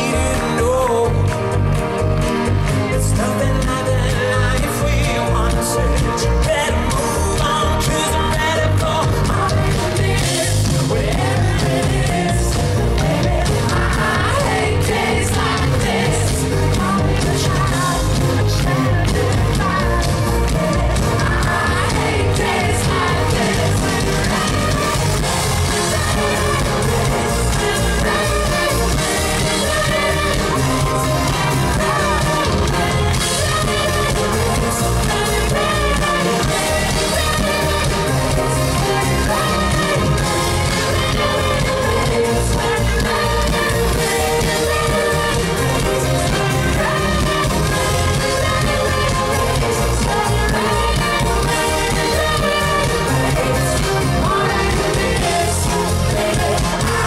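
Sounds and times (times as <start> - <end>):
person singing: 0.0 - 1.9
live pop band with beat: 0.0 - 57.0.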